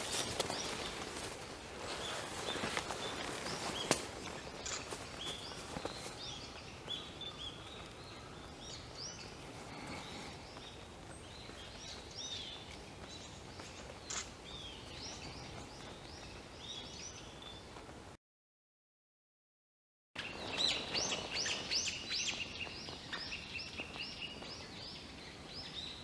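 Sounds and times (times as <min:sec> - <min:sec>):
songbirds chirping: 0:00.0 - 0:18.0, 0:20.2 - 0:26.0
steady background hiss: 0:00.0 - 0:18.0.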